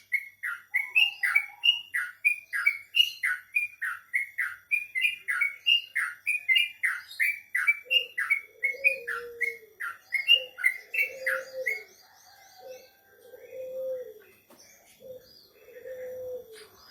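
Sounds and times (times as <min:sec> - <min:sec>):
songbird singing sharp notes: 0:00.0 - 0:16.9
low drawn-out bird call: 0:07.3 - 0:16.9.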